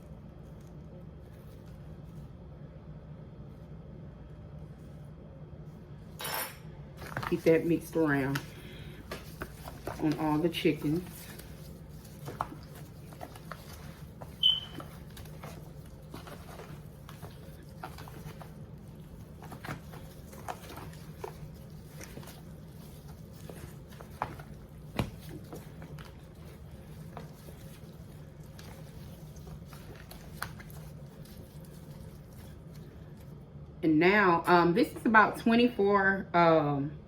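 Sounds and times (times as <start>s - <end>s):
steady low hum: 0.0s - 37.0s
hands squishing wet meat: 7.0s - 33.6s
brief high squeak: 14.4s - 14.8s.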